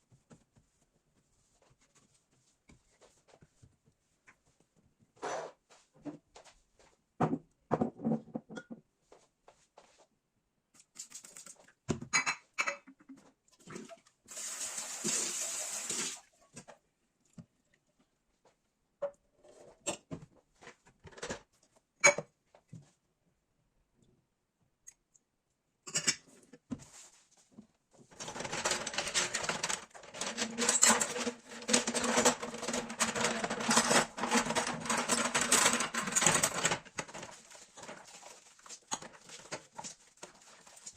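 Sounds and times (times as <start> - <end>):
objects knocking and clicking: 28.1 - 40.9
rattling and rubbing: 28.1 - 40.9.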